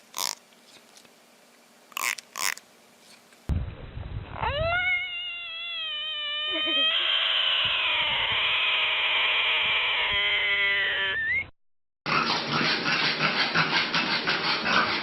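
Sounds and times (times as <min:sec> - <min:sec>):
animal crying: 0:04.4 - 0:11.5.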